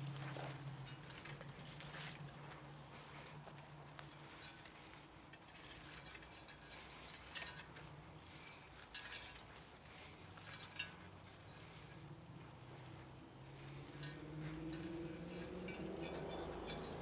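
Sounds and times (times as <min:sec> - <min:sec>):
metal parts clinking: 0:00.9 - 0:03.4, 0:04.0 - 0:08.1, 0:08.7 - 0:09.6, 0:12.8 - 0:17.0.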